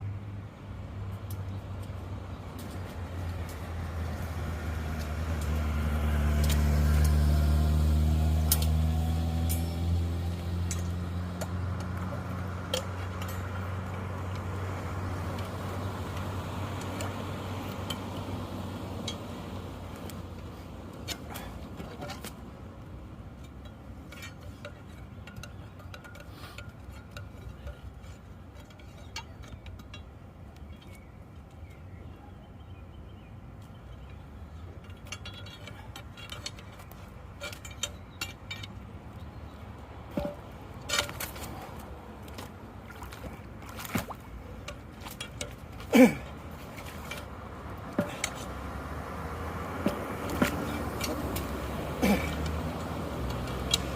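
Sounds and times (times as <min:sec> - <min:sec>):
vehicle engine passing by: 0:01.0 - 0:21.6, 0:46.0 - 0:53.9.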